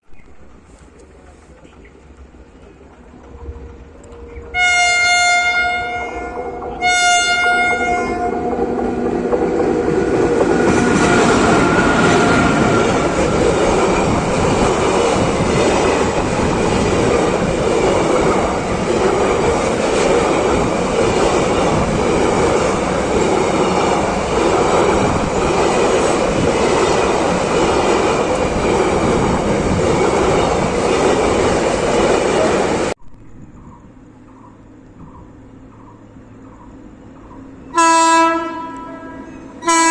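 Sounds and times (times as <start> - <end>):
clickety-clack over rail joints: 0.2 - 4.6, 8.4 - 33.0
train wheels rumbling on track: 0.2 - 39.9.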